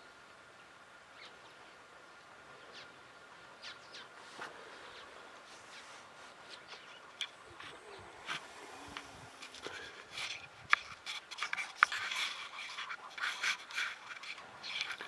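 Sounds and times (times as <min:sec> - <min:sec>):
faint outdoor background: 0:00.0 - 0:15.0
wild birds calling: 0:00.0 - 0:15.0.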